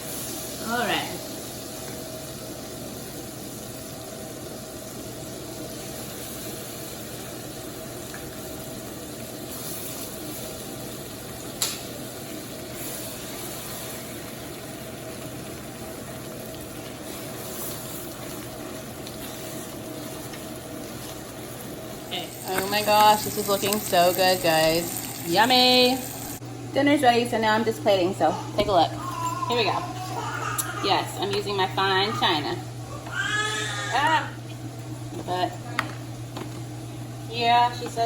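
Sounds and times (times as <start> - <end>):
fish sizzling in a skillet: 0.0 - 26.4.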